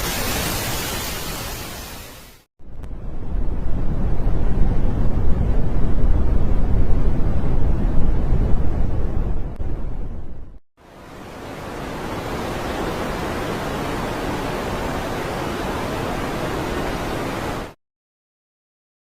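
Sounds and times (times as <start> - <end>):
steady rushing hiss: 0.0 - 2.5
deep rumbling noise: 2.6 - 10.6.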